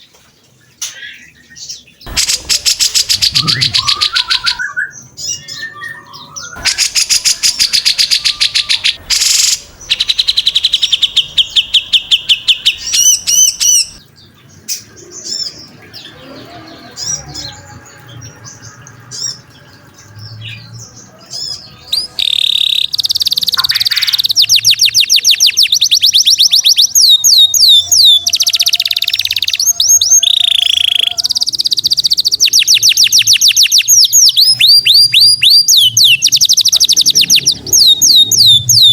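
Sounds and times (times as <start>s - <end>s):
songbird trilling: 2.1s - 14.0s, 21.4s - 38.9s.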